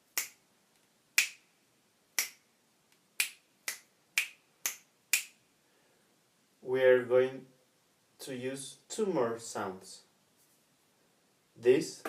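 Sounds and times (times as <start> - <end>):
finger snaps: 0.1 - 0.4, 1.2 - 1.4, 2.2 - 5.4.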